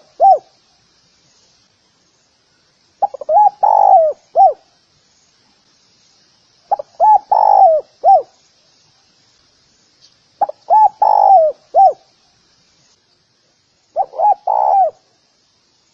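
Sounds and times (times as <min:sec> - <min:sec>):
dove cooing: 0:00.0 - 0:00.5, 0:03.0 - 0:04.6, 0:06.7 - 0:08.3, 0:10.4 - 0:12.0, 0:14.0 - 0:15.1.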